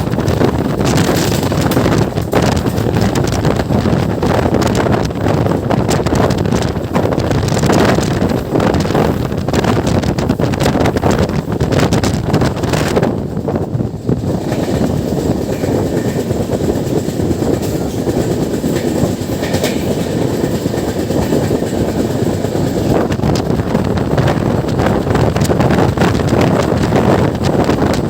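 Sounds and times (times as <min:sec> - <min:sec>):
sharp rail clicks: 0:00.0 - 0:28.0
train wheels rumbling on rails: 0:00.0 - 0:28.0
wind buffeting: 0:00.0 - 0:28.0.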